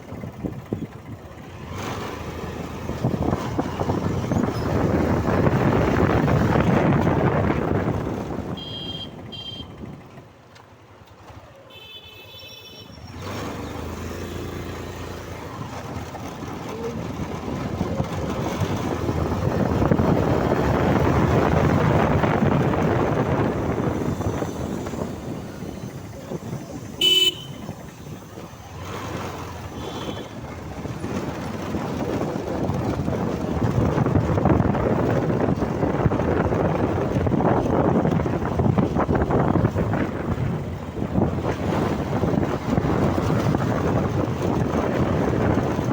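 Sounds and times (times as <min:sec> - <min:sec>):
wind rushing over microphone: 0:00.0 - 0:10.2, 0:13.2 - 0:45.9
vehicle horn toots: 0:08.4 - 0:09.9, 0:11.7 - 0:13.1, 0:26.8 - 0:27.9, 0:29.6 - 0:30.4.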